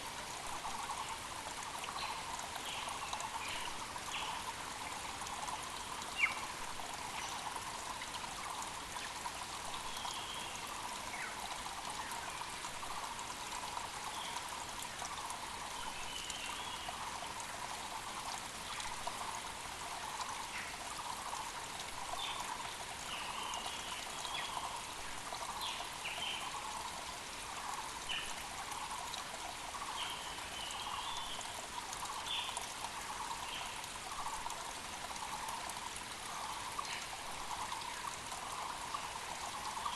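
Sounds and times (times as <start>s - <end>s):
mountain creek running: 0.0s - 39.9s
small birds chirping: 29.7s - 34.5s.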